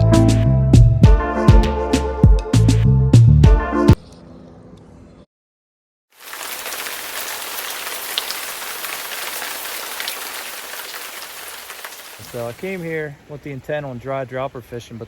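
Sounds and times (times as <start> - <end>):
steady rain falling: 6.2 - 13.2.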